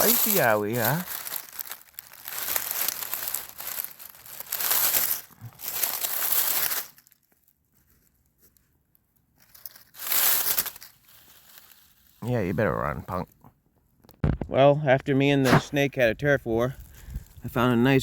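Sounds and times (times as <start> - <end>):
dry leaves rustling: 0.0 - 8.7, 9.4 - 12.3.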